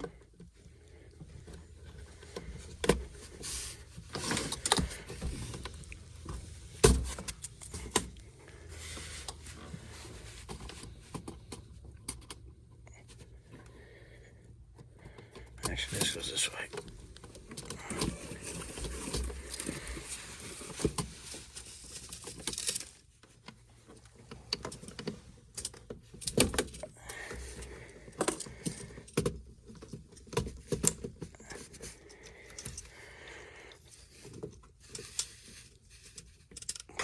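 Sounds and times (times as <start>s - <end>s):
small metal parts clicking and rattling: 21.6s - 23.1s, 34.1s - 37.0s.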